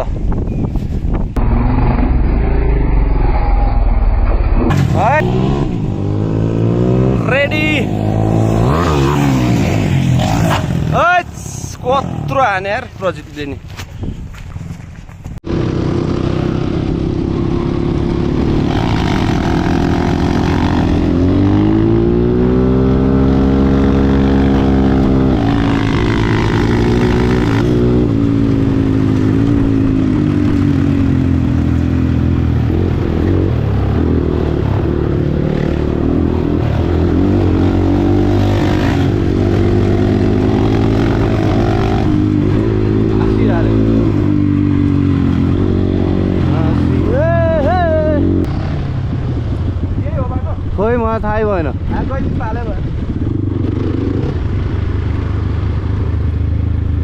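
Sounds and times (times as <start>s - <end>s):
dirt bike engine revving: 1.4s - 11.1s, 15.4s - 49.9s.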